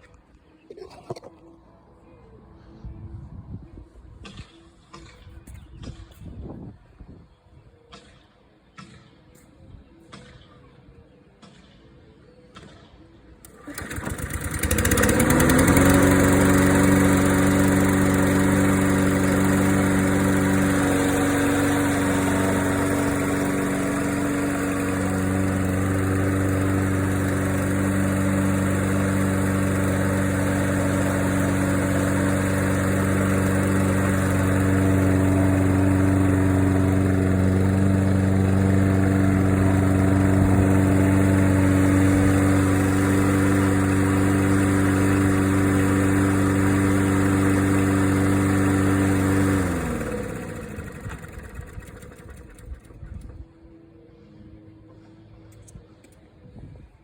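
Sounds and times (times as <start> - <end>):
lawn mower engine starting and running: 12.6 - 56.3.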